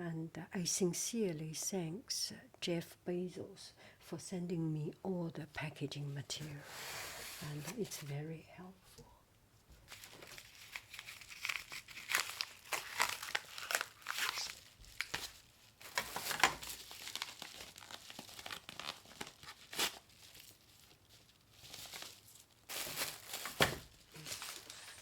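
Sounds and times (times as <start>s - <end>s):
packaging crinkling: 9.9s - 25.0s.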